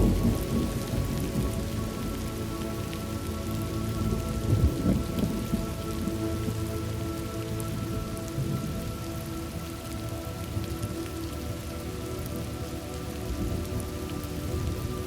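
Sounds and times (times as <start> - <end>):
low thunder rumbling: 0.0 - 6.7, 7.6 - 9.9
steady rain falling: 0.0 - 15.0.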